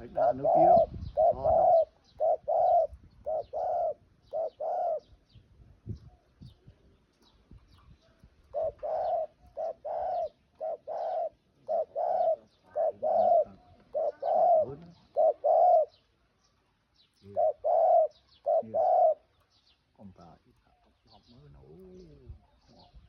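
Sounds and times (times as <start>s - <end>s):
dove cooing: 0.0s - 5.2s, 8.4s - 16.1s, 17.2s - 19.4s
small birds chirping: 0.0s - 23.0s.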